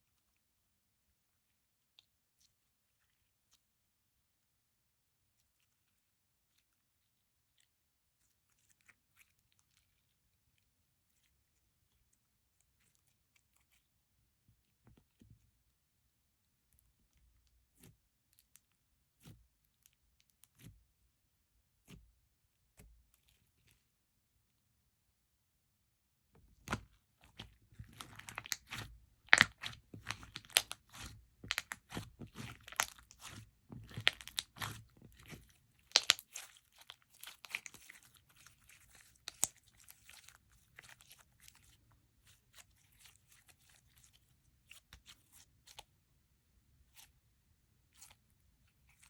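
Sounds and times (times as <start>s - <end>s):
slime squelching clicks and pops: 35.9s - 36.3s.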